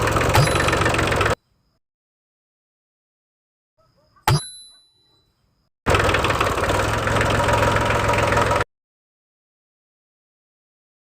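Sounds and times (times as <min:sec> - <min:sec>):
small engine running: 0:00.0 - 0:01.4, 0:05.9 - 0:08.7
metallic clink: 0:04.0 - 0:05.6.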